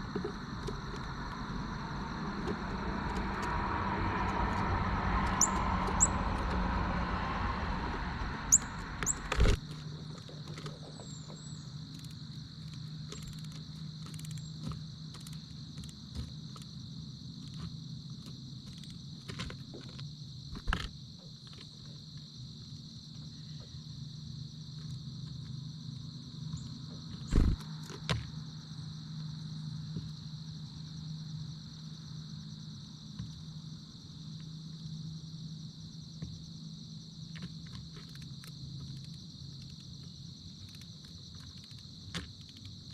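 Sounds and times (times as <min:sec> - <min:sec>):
insect trill: 0:00.0 - 0:42.9
car passing: 0:00.9 - 0:09.6
high chirps: 0:05.3 - 0:06.2, 0:08.4 - 0:09.3.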